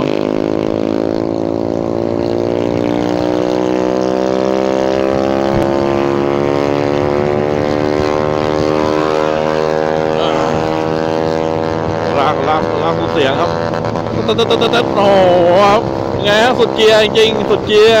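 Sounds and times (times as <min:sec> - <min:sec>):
scooter engine droning: 0:00.0 - 0:18.0
wind and road noise: 0:00.0 - 0:18.0.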